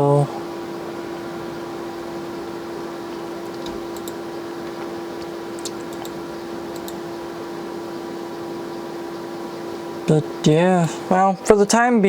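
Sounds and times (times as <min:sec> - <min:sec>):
steady electrical hum: 0:00.0 - 0:12.0
typing on computer keyboard: 0:03.4 - 0:07.0.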